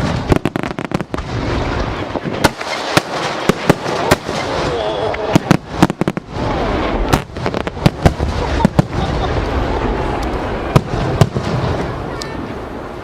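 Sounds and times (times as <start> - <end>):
fireworks shells bursting: 0.0 - 6.2
fireworks rumble and crackle: 0.0 - 13.0.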